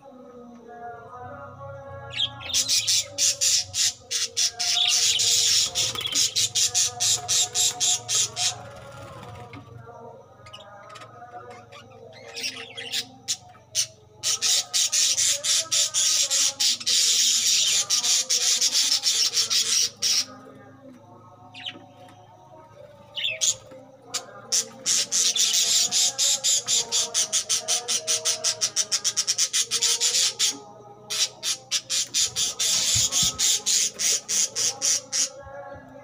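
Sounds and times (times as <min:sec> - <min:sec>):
budgerigars chattering and squawking: 0:02.1 - 0:09.3, 0:11.5 - 0:20.4, 0:23.2 - 0:35.5.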